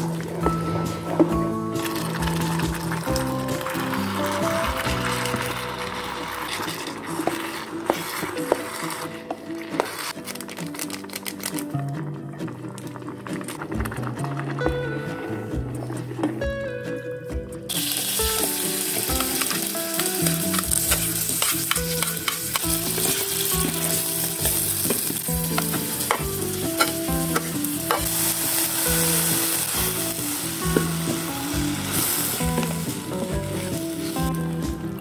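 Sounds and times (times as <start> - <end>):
vegetables sizzling in a pan: 17.7 - 34.8
spatula scraping and clicking on pan: 19.3 - 23.2.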